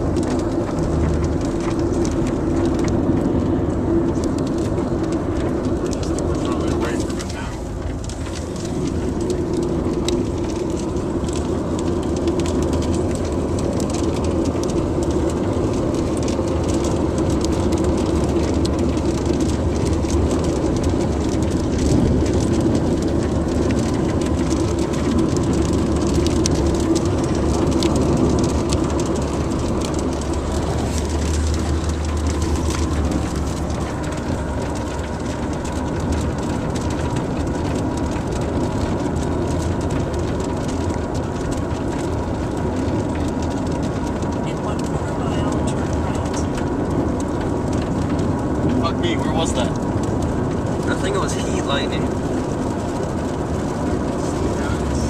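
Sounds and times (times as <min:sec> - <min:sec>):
car engine and tyre rumble: 0:00.0 - 0:55.0
rain ticking on car: 0:00.0 - 0:55.0.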